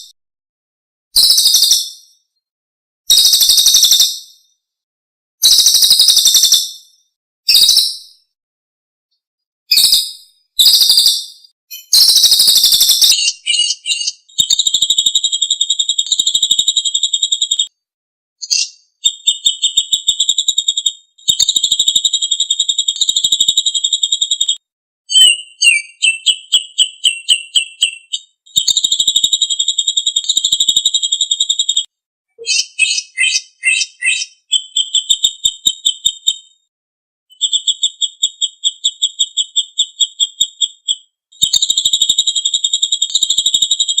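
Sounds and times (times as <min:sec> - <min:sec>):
songbird trills and rattles: 0:09.7 - 0:17.7, 0:18.4 - 0:36.6, 0:37.3 - 0:44.0.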